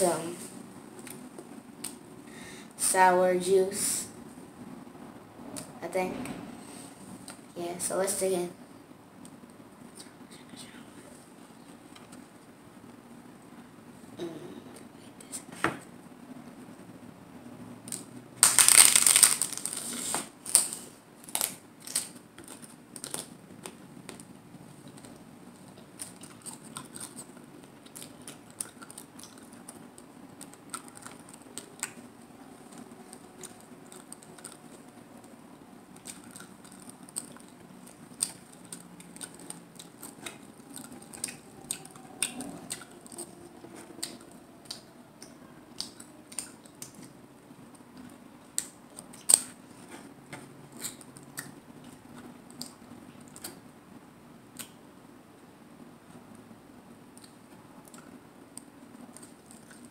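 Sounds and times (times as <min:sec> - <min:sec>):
crunching taco shell: 0:17.9 - 0:32.1, 0:35.9 - 0:43.3.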